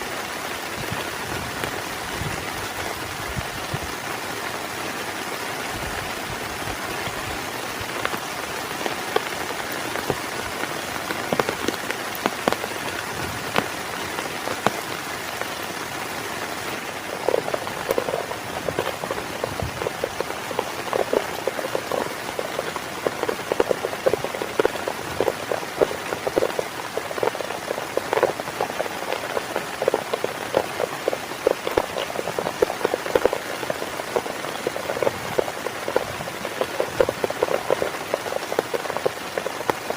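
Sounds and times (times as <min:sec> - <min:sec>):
heavy rain: 0:00.0 - 0:39.9
raindrops striking surface: 0:00.0 - 0:39.9.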